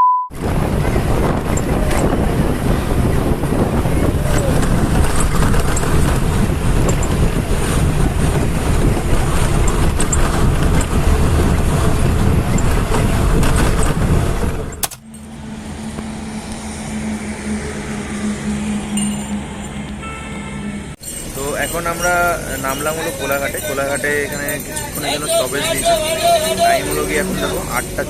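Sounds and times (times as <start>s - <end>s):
bus engine and road rumble: 0.3s - 28.0s.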